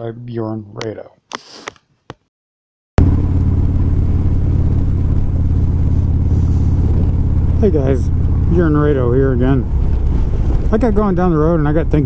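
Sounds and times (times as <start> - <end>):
motorcycle engine running: 3.0 - 12.0.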